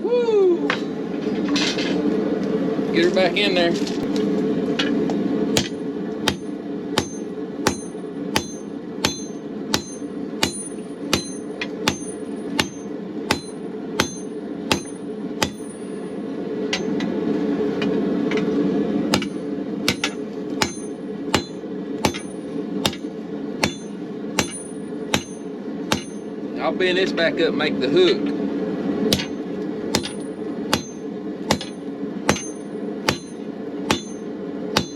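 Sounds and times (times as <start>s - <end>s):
gas forge burner running: 0.7s - 34.9s
hammer striking steel on anvil: 5.6s - 16.1s, 16.7s - 17.0s, 19.1s - 26.3s, 29.1s - 34.9s.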